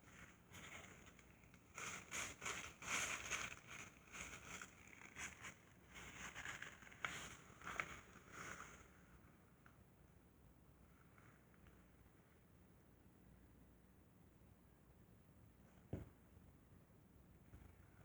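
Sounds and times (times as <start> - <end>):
hands rustling and scraping parts: 0.0 - 8.9.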